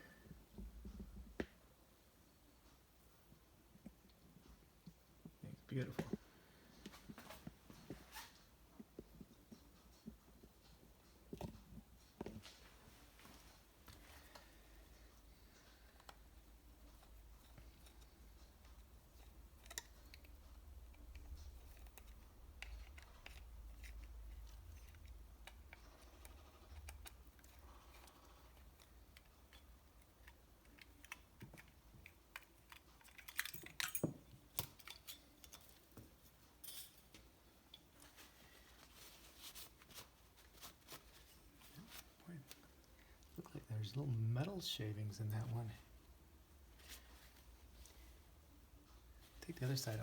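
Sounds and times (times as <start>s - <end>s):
small metal parts clinking: 32.4s - 35.8s.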